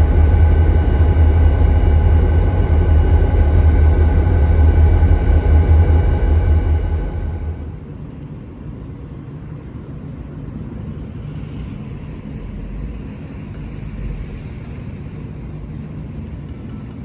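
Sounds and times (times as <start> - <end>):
diesel locomotives rumbling: 0.0 - 8.0.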